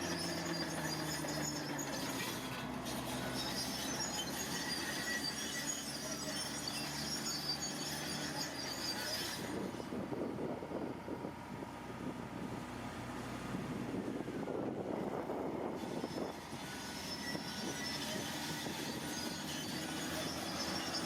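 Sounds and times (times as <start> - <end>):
high metallic squeaking: 0.0 - 10.0, 15.7 - 21.0
diesel engine running: 0.0 - 21.0
wind rumbling on microphone: 9.4 - 19.2.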